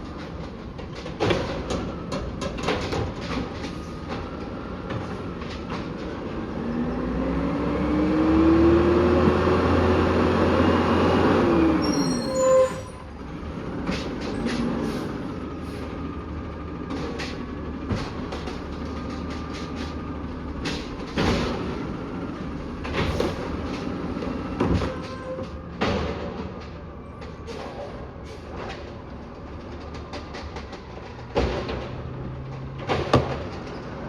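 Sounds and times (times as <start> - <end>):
clunks and knocks: 0.0 - 6.5, 16.6 - 34.0
garbage truck engine revving: 4.2 - 26.9
loud squeal and clatter: 10.6 - 13.2, 24.6 - 26.0.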